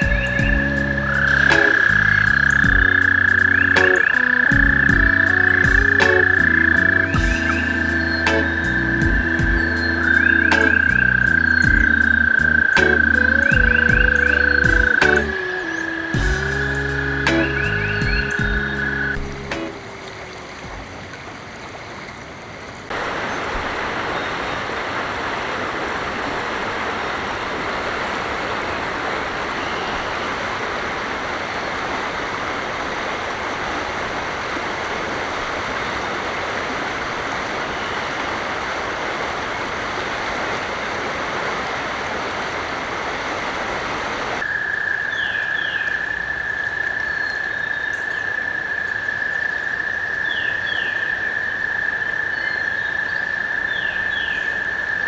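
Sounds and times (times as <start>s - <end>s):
toad trill: 0.0s - 20.0s
bird chirps: 0.0s - 21.0s.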